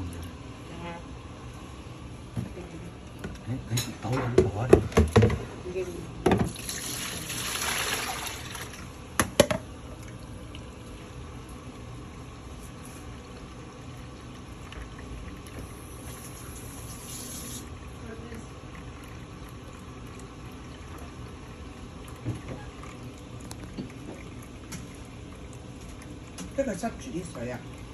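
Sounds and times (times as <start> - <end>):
washing machine running faintly: 0.0 - 27.9
water rushing in washing machine: 6.2 - 27.9.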